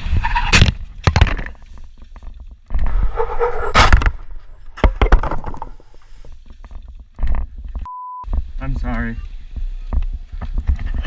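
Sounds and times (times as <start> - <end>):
sharp knocks and thuds: 3.8 - 8.6.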